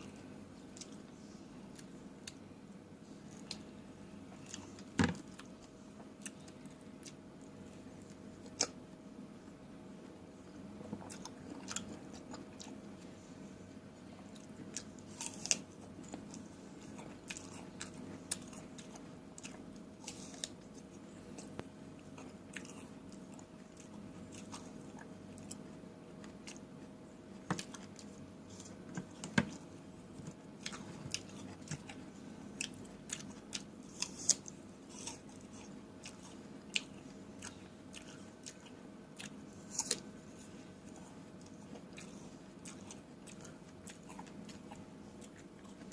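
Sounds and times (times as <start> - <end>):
faint steady hum: 0.0 - 45.9
person biting and chewing fruit: 14.4 - 25.6, 27.5 - 45.9.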